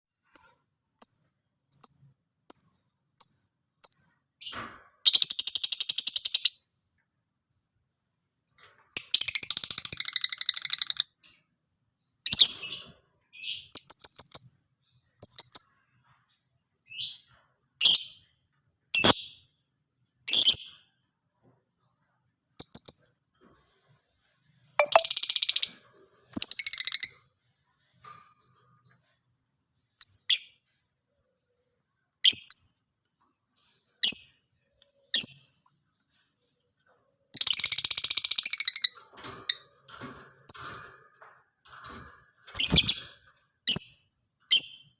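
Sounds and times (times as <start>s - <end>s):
bird chirping: 0.3s - 6.7s, 8.5s - 11.5s, 24.8s - 27.2s, 37.3s - 39.0s.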